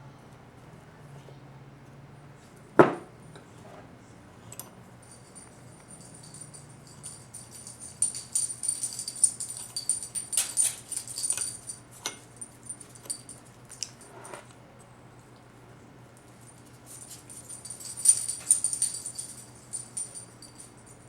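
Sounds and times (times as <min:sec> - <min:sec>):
small metal parts clicking: 0:07.0 - 0:12.2.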